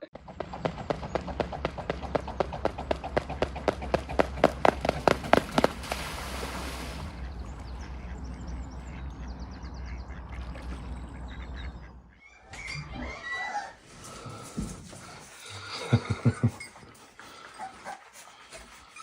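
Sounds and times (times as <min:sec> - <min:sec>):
steady low hum: 0:00.2 - 0:12.2.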